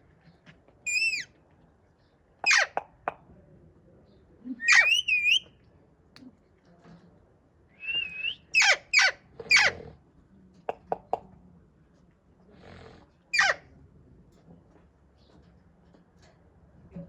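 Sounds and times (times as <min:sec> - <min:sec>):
parrot screeching: 0:00.9 - 0:01.2, 0:04.6 - 0:05.4, 0:08.6 - 0:09.7, 0:13.4 - 0:13.6
parrot warbling whistle: 0:00.9 - 0:01.2, 0:04.6 - 0:05.4, 0:07.8 - 0:08.8
parrot high chirps: 0:00.9 - 0:01.3, 0:02.4 - 0:02.8, 0:04.6 - 0:05.5, 0:07.9 - 0:09.7, 0:13.4 - 0:13.6.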